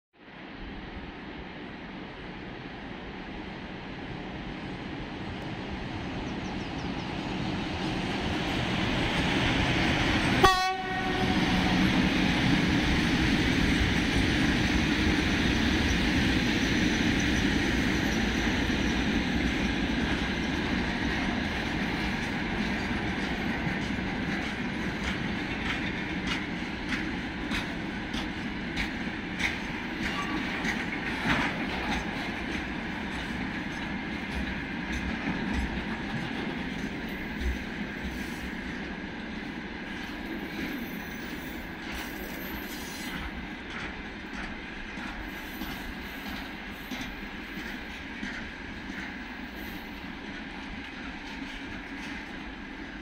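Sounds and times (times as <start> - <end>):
electric locomotive passing: 0.3 - 53.0
train horn toot: 10.4 - 11.8
wheels clicking over rail joints: 21.2 - 38.1.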